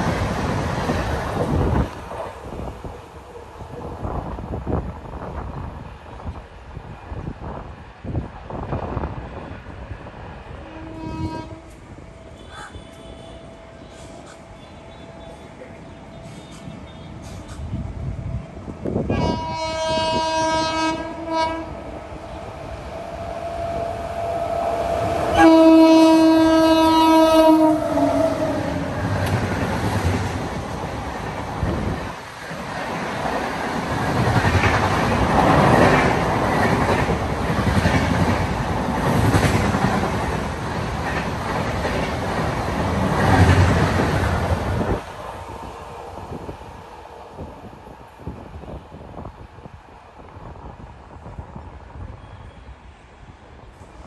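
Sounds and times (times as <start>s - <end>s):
locomotive horn blasts: 10.6s - 15.5s, 19.1s - 21.8s, 25.3s - 28.7s.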